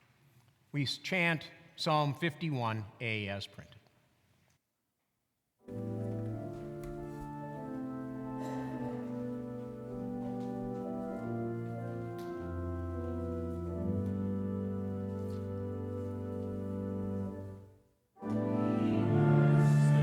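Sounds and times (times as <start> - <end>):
church organ slow chords: 5.7 - 20.0.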